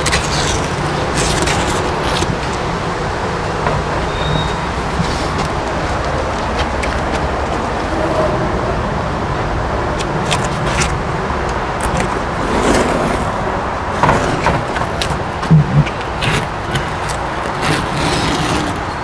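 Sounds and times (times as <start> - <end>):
masking tape being peeled: 0.0 - 2.5, 10.0 - 19.0.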